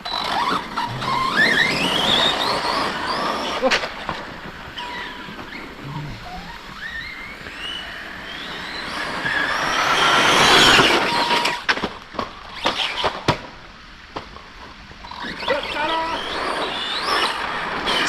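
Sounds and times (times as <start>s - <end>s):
electric motor whining: 0.0s - 11.7s.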